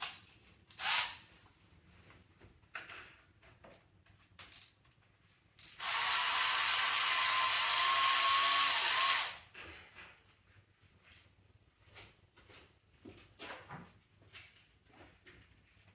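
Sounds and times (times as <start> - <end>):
power ratchet whining: 5.6 - 9.4.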